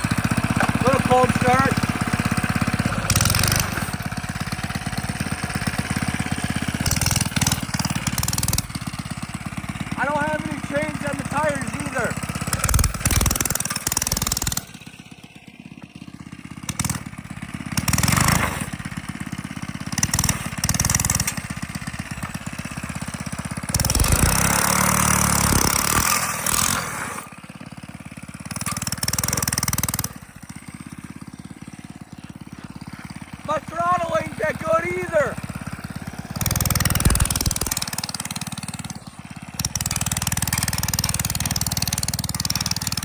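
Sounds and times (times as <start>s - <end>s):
small engine revving: 0.0s - 43.0s.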